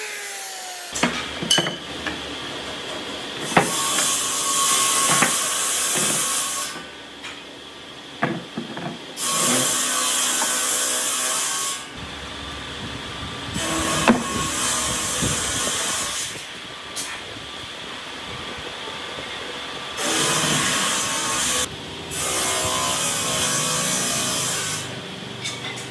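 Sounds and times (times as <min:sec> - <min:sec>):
wooden knocks and clicks: 0:03.4 - 0:04.1, 0:05.1 - 0:05.4, 0:06.0 - 0:06.3, 0:08.2 - 0:09.1, 0:14.0 - 0:14.3.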